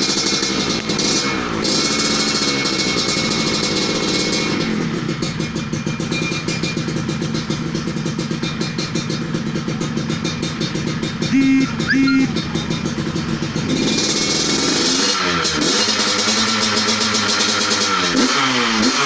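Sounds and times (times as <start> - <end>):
two-stroke motorcycle engine idling: 0.0 - 18.2.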